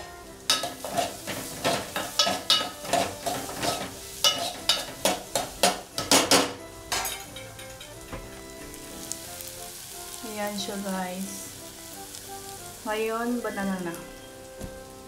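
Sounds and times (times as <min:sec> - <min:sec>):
frying sizzle: 0:00.0 - 0:15.0
spoon scraping metal pot: 0:00.5 - 0:05.5
spoon clanking against pot: 0:00.5 - 0:08.0.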